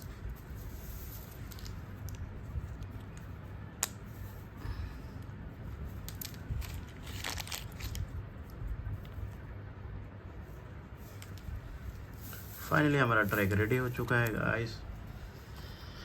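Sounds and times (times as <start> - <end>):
plastic pieces rattling: 1.0 - 2.2, 6.0 - 8.1.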